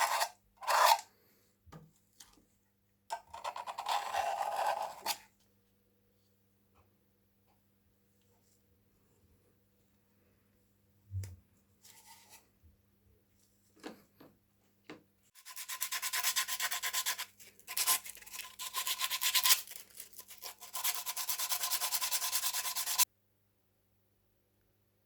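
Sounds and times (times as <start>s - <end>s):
hand sanding strokes: 15.4s - 19.6s, 20.4s - 23.0s.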